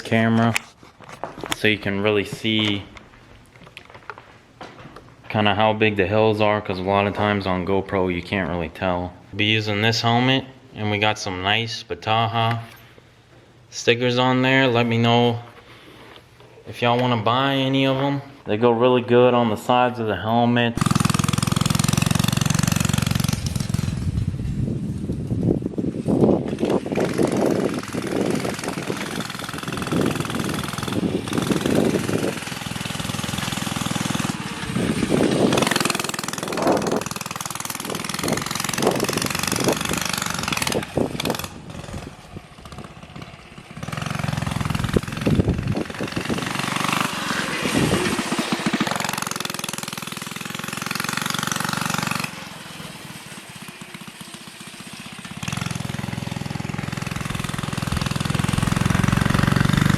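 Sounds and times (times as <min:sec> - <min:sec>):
minibike engine running under load: 0:20.8 - 0:59.9.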